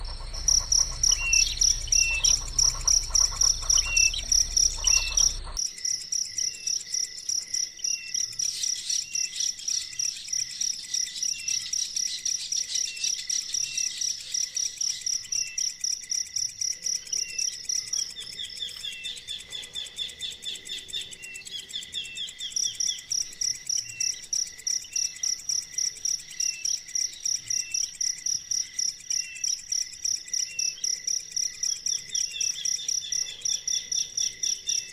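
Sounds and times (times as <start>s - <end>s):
low rumble: 0.0s - 5.6s
bird chirps: 0.0s - 34.9s
insects trilling: 0.0s - 34.9s.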